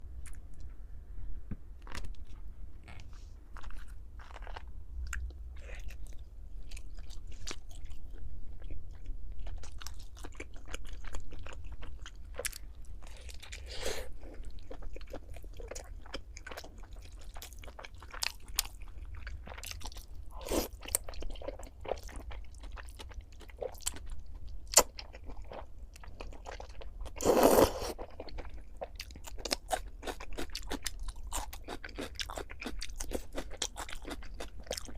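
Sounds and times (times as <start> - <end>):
crunchy chewing: 1.8 - 34.9.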